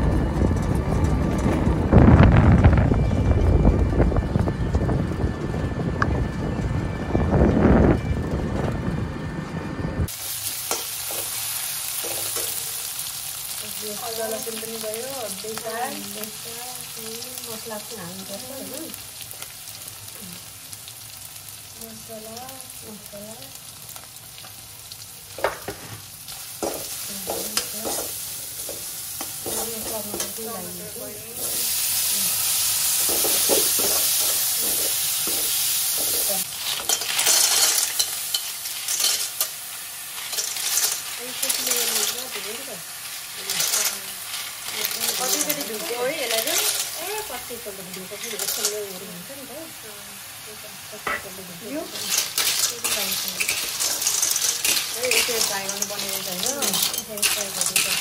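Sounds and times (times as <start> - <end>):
onion and spices sizzling in oil: 10.0 - 58.0
metal spatula scraping a pan: 25.6 - 32.1, 32.8 - 49.1, 51.8 - 58.0.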